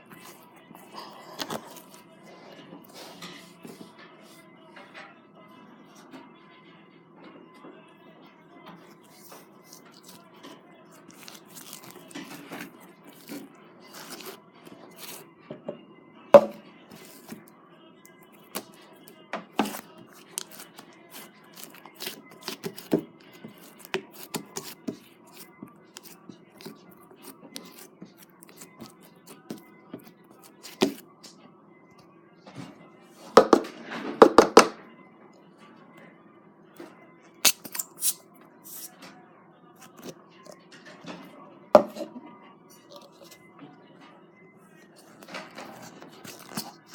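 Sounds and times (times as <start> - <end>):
slime squishing: 0.1 - 2.0, 8.8 - 15.2, 16.4 - 17.5, 18.3 - 31.0, 45.0 - 46.9.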